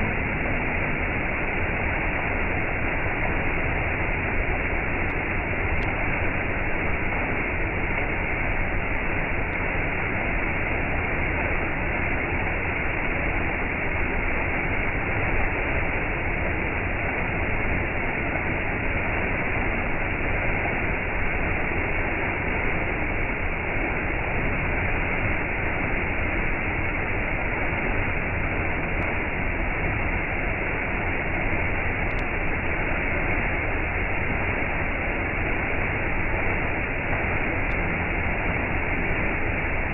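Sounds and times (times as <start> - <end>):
waterfall rushing: 25.3 - 39.9.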